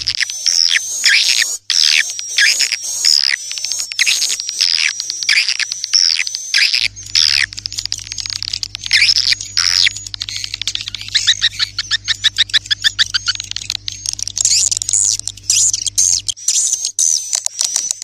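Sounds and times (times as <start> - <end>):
swiftlets twittering and chirping: 0.0 - 18.0
faint low hum: 6.8 - 16.4.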